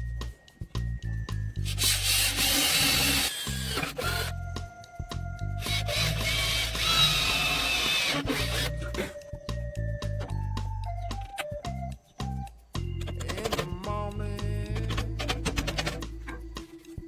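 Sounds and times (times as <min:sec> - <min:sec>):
background music: 0:00.0 - 0:17.0
planer saw cutting wood: 0:02.0 - 0:04.3.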